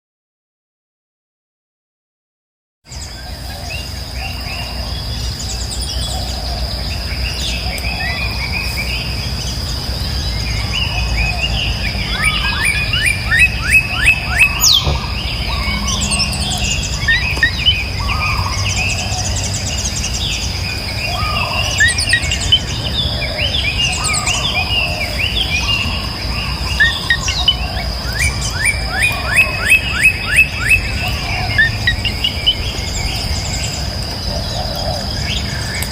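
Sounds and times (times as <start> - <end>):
birds chirping and calling: 2.9 - 35.9
insect drone: 2.9 - 35.9
low background rumble: 3.0 - 28.8.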